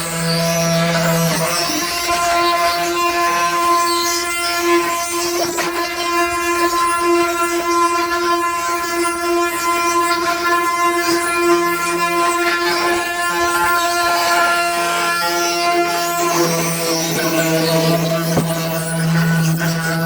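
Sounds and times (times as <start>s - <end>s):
wooden cart axle whining: 17.0s - 19.0s.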